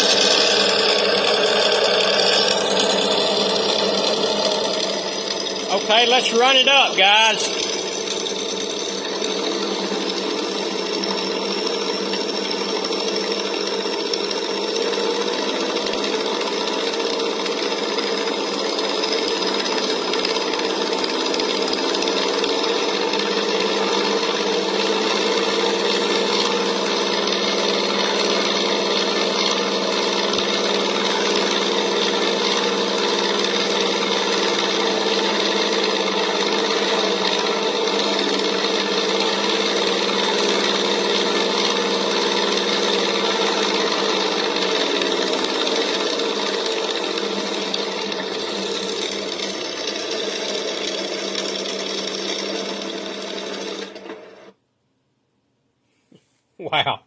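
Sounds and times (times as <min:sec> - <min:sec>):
simulated engine through speaker: 0:05.6 - 0:07.8, 0:56.6 - 0:57.0.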